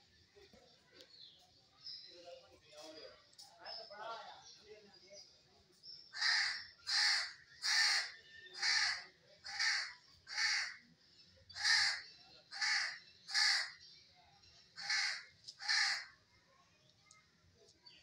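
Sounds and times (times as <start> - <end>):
bird harsh caw-like calls: 6.1 - 10.9, 11.5 - 13.8, 14.8 - 16.2.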